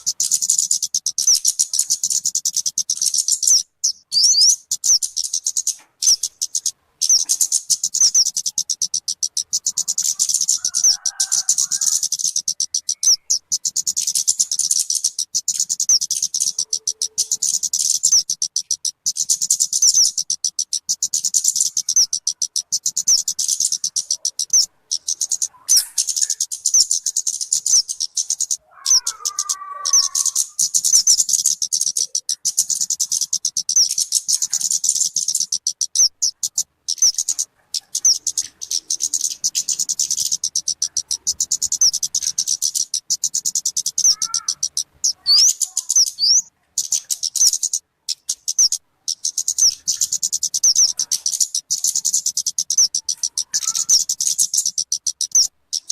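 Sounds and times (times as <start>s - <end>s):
bird chattering rapidly: 0.0s - 55.9s
bird warbling phrase: 16.4s - 17.7s, 23.8s - 27.2s, 27.8s - 31.1s, 43.8s - 47.5s, 50.7s - 51.4s, 52.8s - 54.3s.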